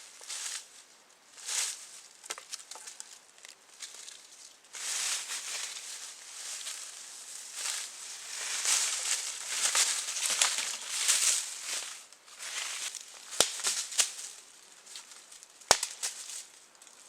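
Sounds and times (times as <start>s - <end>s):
rustling and crunching: 0.0s - 17.0s
sharp snaps: 15.7s - 16.1s.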